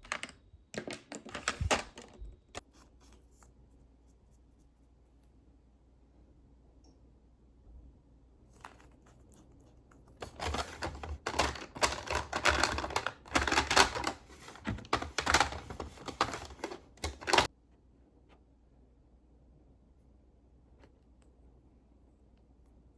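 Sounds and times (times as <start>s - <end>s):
small objects clattering and rustling: 10.2s - 17.5s.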